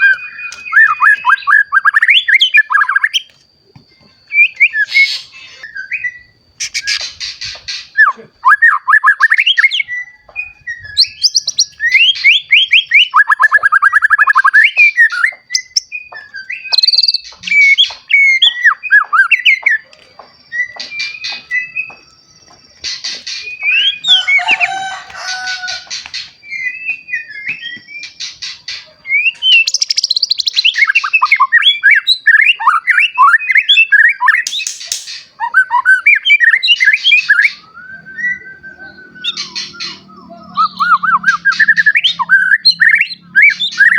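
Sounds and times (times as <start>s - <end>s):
bird singing whistled trills: 0.0s - 43.9s
bird chattering: 34.3s - 43.9s.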